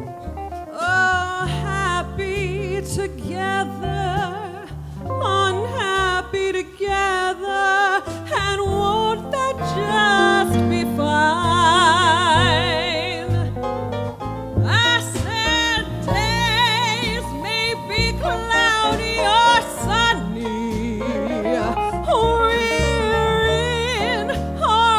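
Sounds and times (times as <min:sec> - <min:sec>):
woman singing wordless notes: 0:00.8 - 0:13.6, 0:14.7 - 0:24.9
jazz combo playing: 0:08.1 - 0:24.9.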